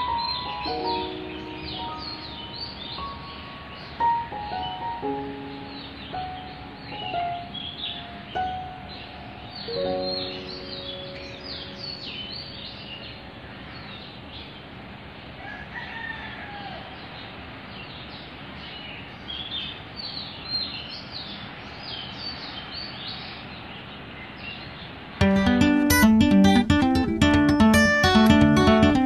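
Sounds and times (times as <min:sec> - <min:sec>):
small birds chirping: 0:00.0 - 0:14.7, 0:17.9 - 0:29.0
rooster crowing: 0:15.4 - 0:17.1.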